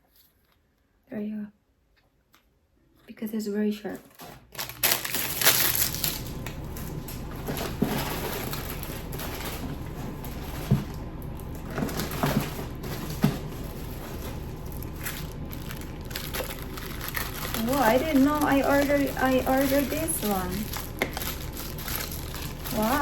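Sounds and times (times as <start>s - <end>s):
plastic packaging crinkling: 4.0s - 23.0s.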